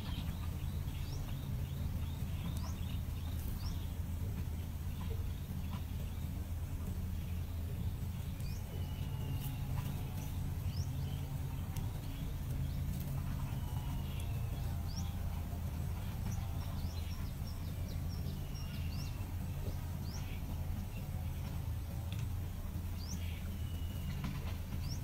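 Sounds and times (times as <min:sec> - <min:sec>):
small birds chirping: 0:00.0 - 0:25.0
steady low hum: 0:00.0 - 0:25.0.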